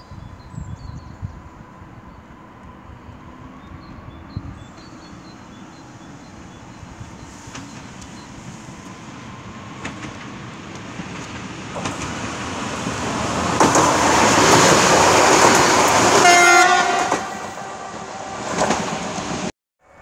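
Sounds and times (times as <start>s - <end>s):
electric train passing: 1.2s - 20.0s
train horn blast: 16.0s - 19.2s.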